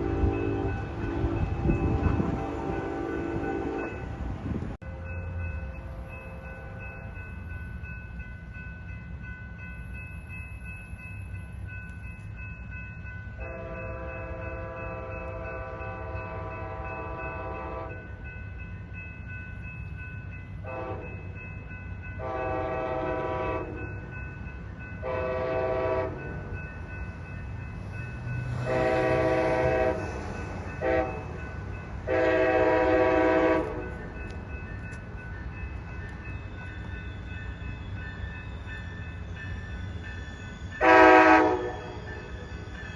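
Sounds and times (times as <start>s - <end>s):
train air horn blasts: 0.0s - 4.2s, 13.4s - 18.1s, 20.6s - 21.2s, 22.2s - 23.8s, 25.0s - 26.2s, 28.6s - 30.2s, 30.8s - 31.4s, 32.1s - 34.0s, 40.8s - 42.0s
train rumbling: 0.0s - 42.9s.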